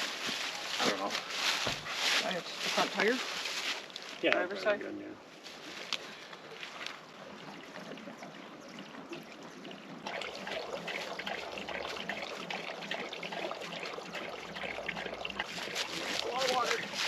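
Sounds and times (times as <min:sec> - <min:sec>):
water pouring: 0:06.6 - 0:17.0.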